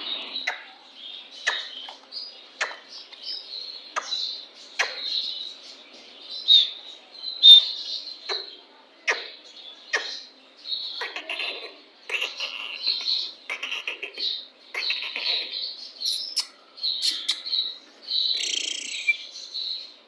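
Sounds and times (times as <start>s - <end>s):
birds chirping and chattering: 0.0s - 20.0s.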